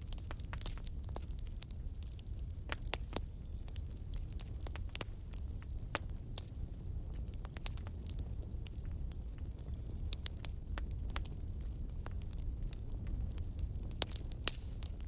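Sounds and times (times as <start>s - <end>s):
fire crackles and pops: 0.0s - 15.0s
wood fire flames rumbling: 0.0s - 15.0s.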